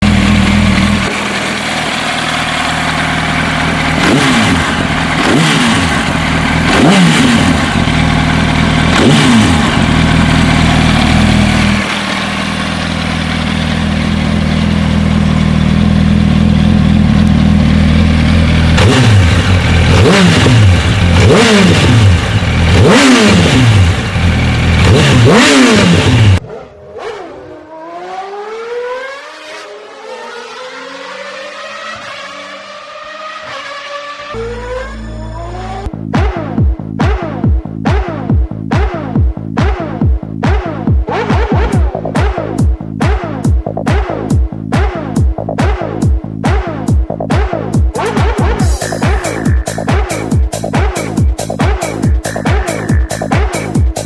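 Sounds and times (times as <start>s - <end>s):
motorcycle engine idling and revving: 0.0s - 54.0s
faint engine tones: 34.4s - 35.9s.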